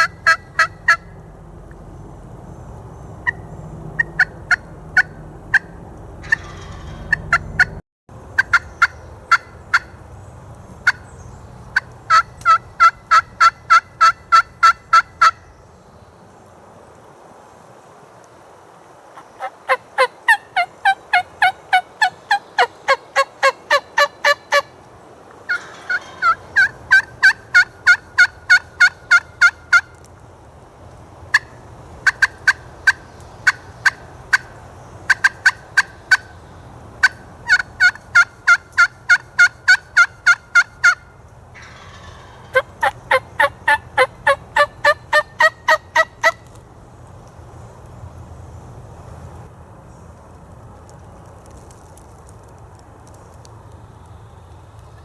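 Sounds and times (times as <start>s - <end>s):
turkey yelping: 0.0s - 1.2s, 3.2s - 7.8s, 19.2s - 24.7s, 25.5s - 29.9s, 35.1s - 36.3s, 37.0s - 41.0s, 41.6s - 46.5s.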